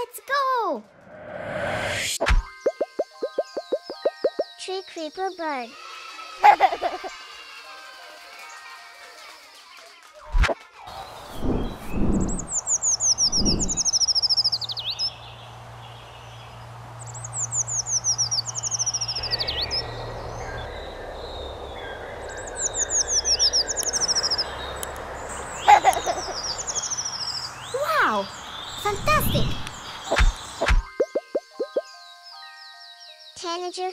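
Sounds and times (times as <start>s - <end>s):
bird singing high thin phrases: 2.6s - 5.8s, 11.0s - 15.2s, 22.4s - 33.9s.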